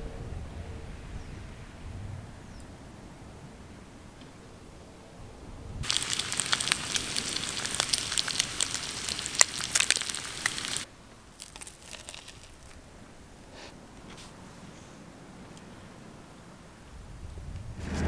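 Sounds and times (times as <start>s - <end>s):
bacon and egg sizzling in a pan: 5.8s - 12.6s.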